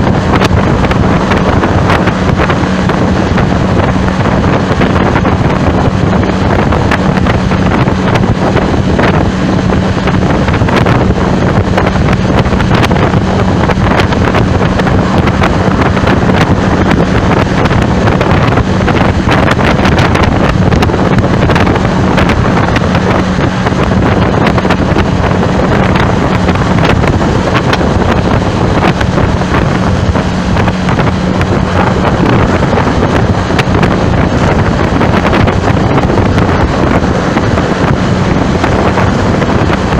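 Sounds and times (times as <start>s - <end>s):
constant low hum: 0.0s - 39.9s
wind buffeting microphone: 0.0s - 39.9s.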